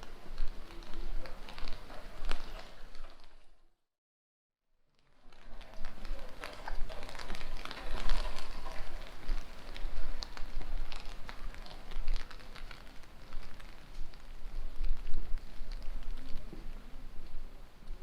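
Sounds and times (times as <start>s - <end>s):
rain drops ticking: 0.0s - 3.5s, 4.9s - 18.0s
steady rain patter: 0.0s - 3.5s, 4.9s - 18.0s.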